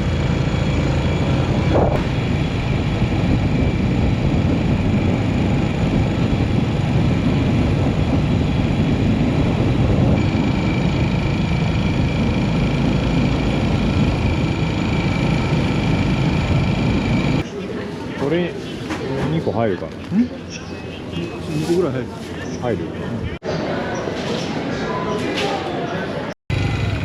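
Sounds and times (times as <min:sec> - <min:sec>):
motorcycle engine running: 0:00.0 - 0:17.4, 0:26.5 - 0:27.0
high-pitched whine: 0:00.0 - 0:17.5
wind and road noise: 0:00.0 - 0:17.5.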